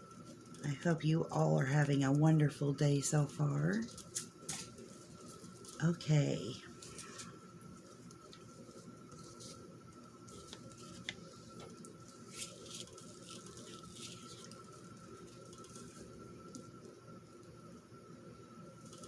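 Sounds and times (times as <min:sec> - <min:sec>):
paper rustling: 0:06.8 - 0:16.6.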